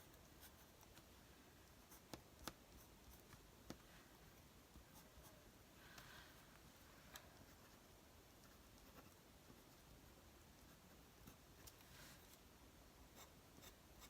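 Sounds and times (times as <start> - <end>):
pen scratching on paper: 13.1 - 14.0.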